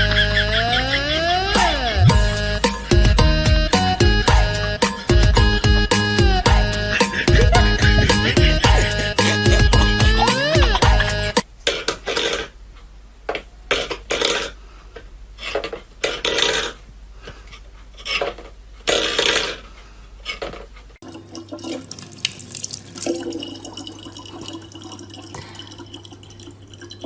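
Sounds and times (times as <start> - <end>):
low hum: 0.0 - 11.4
water running steadily: 21.0 - 27.0
water splashes: 21.0 - 27.0.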